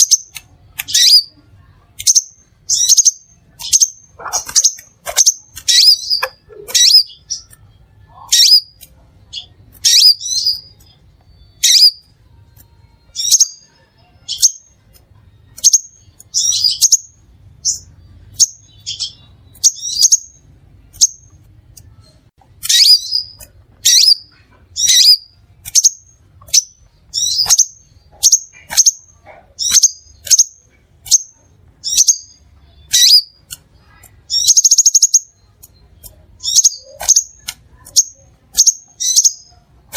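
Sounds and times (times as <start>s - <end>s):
bird calling with sharp chips: 2.0s - 7.6s, 22.6s - 39.6s.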